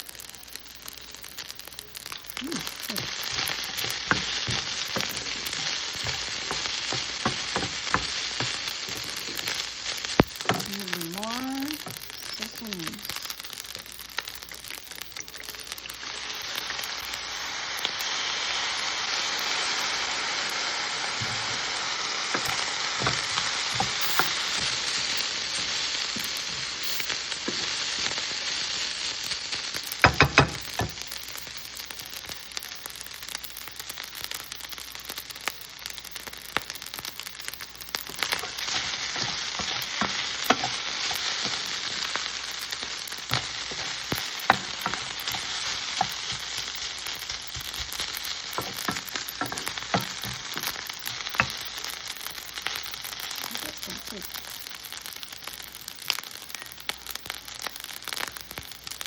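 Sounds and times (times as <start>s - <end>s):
rice sizzling in a pan: 0.0s - 59.0s
utensil clicking against pan: 10.2s - 10.8s, 29.8s - 31.4s, 43.3s - 45.4s, 46.0s - 55.5s.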